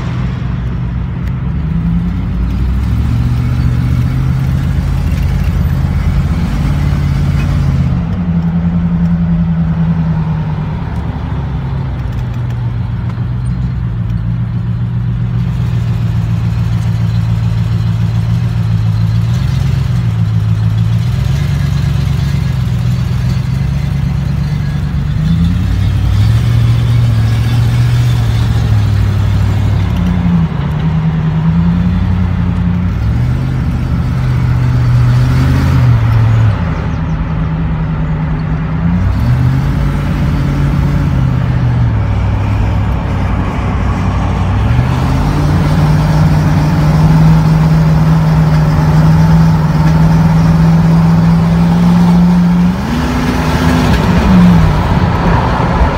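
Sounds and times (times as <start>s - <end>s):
car engine while driving: 0.0s - 55.9s.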